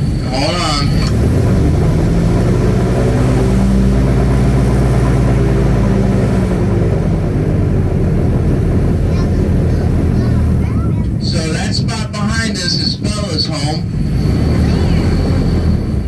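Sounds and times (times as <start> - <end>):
airboat engine and propeller: 0.0 - 16.0.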